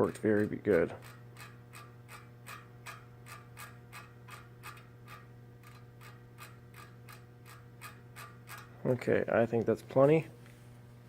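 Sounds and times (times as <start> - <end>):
freehub pawls ticking: 0.0 - 8.8
low steady hum: 0.0 - 11.0.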